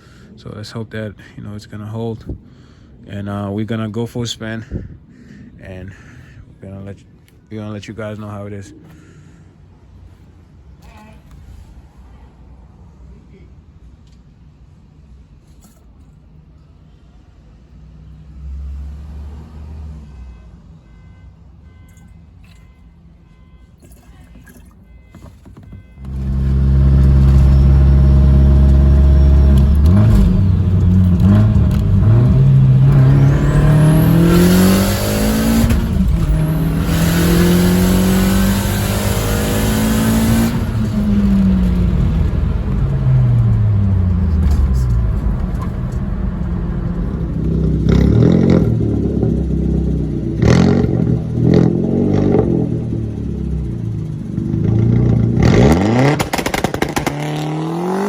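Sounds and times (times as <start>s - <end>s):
turbocharged car engine revving: 26.0s - 58.0s.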